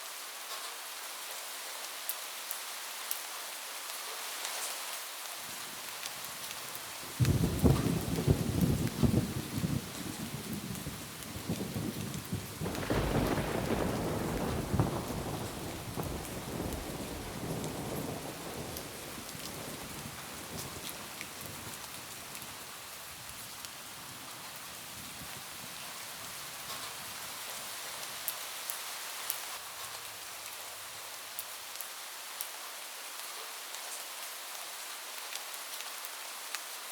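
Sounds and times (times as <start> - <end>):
rain on a roof: 0.0 - 36.9
thunder rumbling: 7.2 - 22.5.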